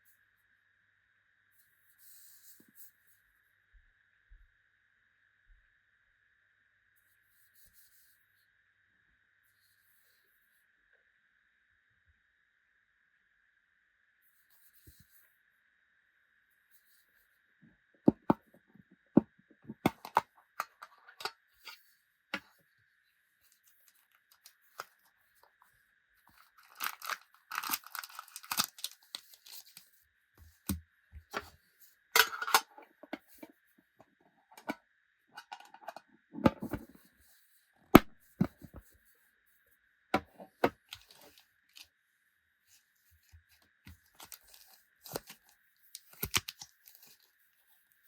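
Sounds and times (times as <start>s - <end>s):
card packets clicking and tapping: 26.3s - 29.8s, 43.9s - 47.3s
wrapper tearing and crinkling: 26.4s - 29.8s, 44.1s - 47.3s.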